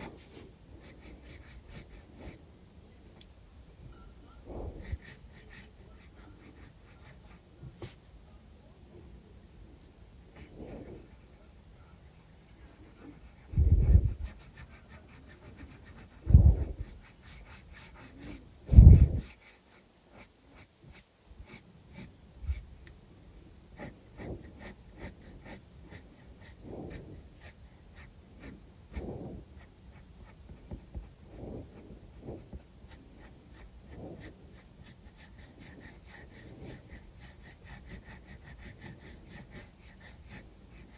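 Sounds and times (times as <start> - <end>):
pencil scratching on paper: 0.0 - 2.4, 4.7 - 8.1, 10.2 - 40.9
low rubbing or handling noise: 12.0 - 14.5, 15.6 - 19.4.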